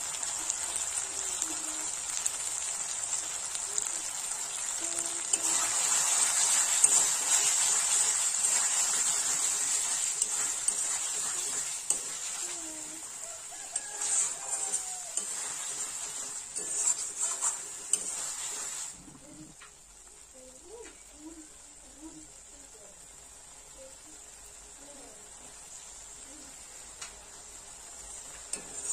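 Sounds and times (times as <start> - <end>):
potatoes sizzling in oil: 0.0 - 28.9
metal spatula stirring: 4.4 - 19.0, 28.2 - 28.9.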